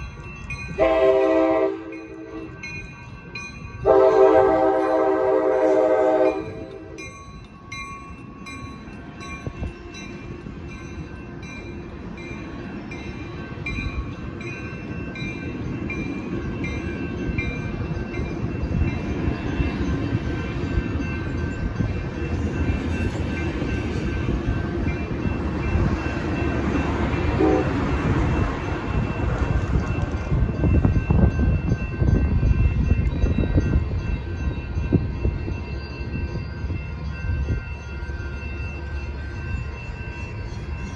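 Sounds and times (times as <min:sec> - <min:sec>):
crossing bells ringing: 0:00.0 - 0:40.9
train rumbling: 0:00.0 - 0:40.9
train horn: 0:00.8 - 0:02.5, 0:03.8 - 0:07.0, 0:27.4 - 0:27.9.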